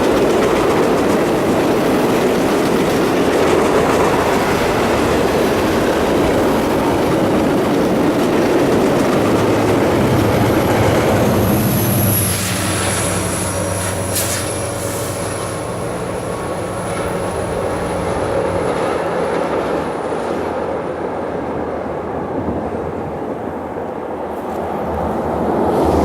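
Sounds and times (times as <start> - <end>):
train cars rolling on rails: 0.0 - 26.0
thin high whine: 10.6 - 17.8.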